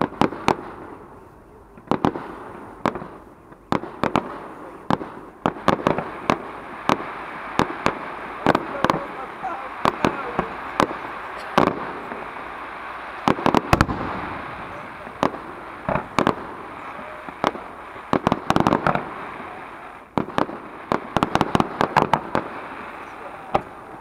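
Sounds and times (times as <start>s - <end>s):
firework shells bursting: 4.9s - 24.0s.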